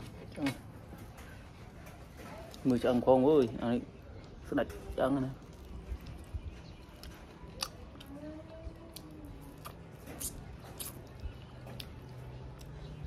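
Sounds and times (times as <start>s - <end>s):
chewing clicks and smacks: 5.3s - 8.2s, 8.8s - 13.0s.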